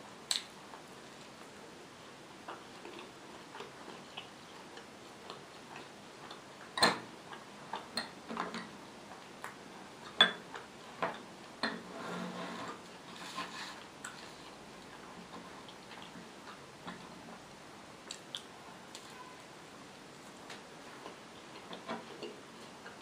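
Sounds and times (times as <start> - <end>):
person chewing with mouth clicks: 2.4 - 6.5, 18.0 - 19.2
soft rustle: 11.8 - 16.3.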